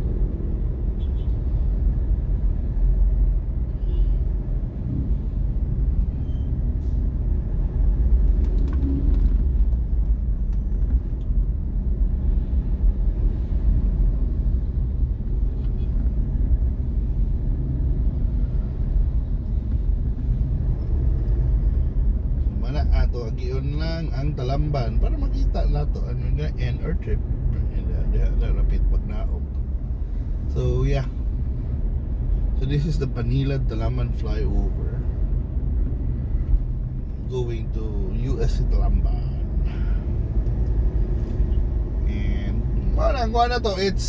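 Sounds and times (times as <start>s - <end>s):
car engine and tyres rumbling: 0.0s - 44.0s.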